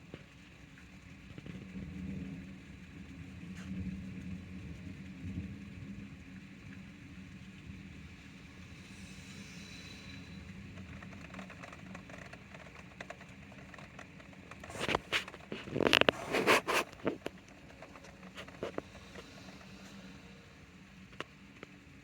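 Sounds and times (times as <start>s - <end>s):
steady rain: 0.0s - 22.0s
light ticks: 10.0s - 16.2s
drips pattering: 10.3s - 21.8s
close knocks and scrapes: 10.8s - 20.0s.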